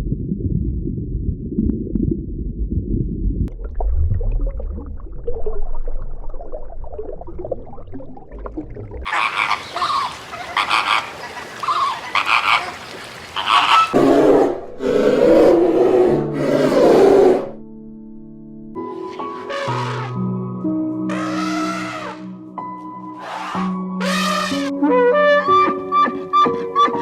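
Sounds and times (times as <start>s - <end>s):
frogs croaking: 9.0s - 15.1s.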